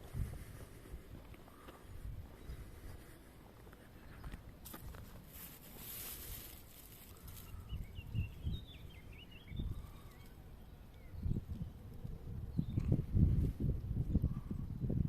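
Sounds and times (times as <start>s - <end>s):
rustling hiss: 4.6s - 8.0s
small bird chirping: 5.4s - 11.8s.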